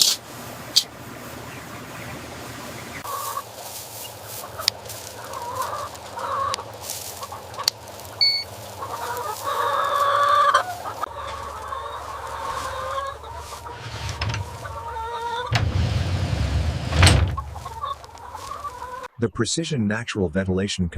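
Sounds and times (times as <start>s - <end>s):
chickens clucking: 0.0s - 19.2s.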